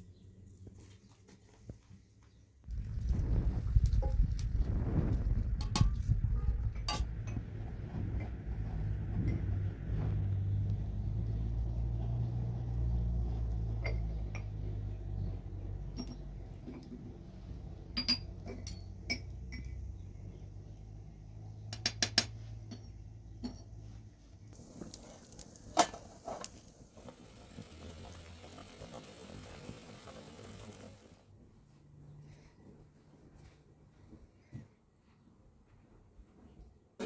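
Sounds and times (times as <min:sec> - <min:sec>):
low rumble: 0:02.7 - 0:13.7
dishes and utensils clinking: 0:06.7 - 0:07.4.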